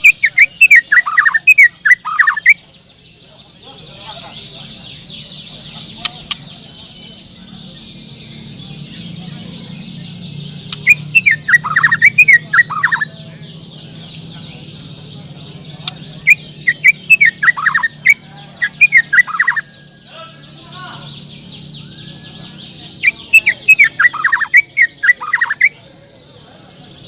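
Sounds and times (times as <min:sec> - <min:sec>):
chorus of birds singing: 0:00.0 - 0:27.0
loud bird whistling sharp notes: 0:10.6 - 0:13.1, 0:16.2 - 0:25.8.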